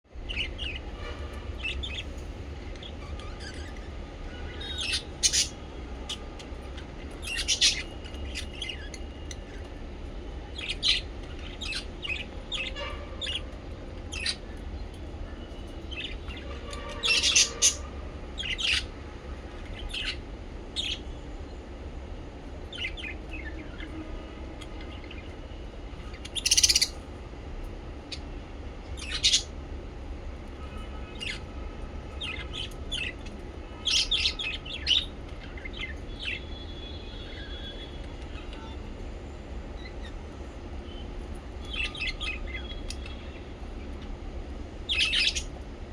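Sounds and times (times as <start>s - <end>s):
parrots chirping and squawking: 0.2s - 9.8s, 10.6s - 20.2s, 20.8s - 21.1s, 24.6s - 25.3s, 25.9s - 27.1s, 28.9s - 29.6s, 30.5s - 31.5s, 32.1s - 38.8s, 41.3s - 43.4s, 44.8s - 45.6s.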